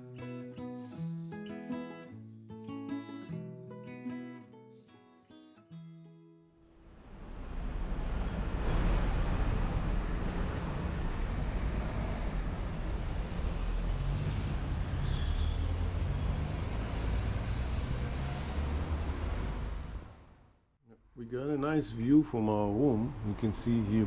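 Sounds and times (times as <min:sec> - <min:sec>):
road traffic noise: 0:06.8 - 0:20.6, 0:21.9 - 0:24.0.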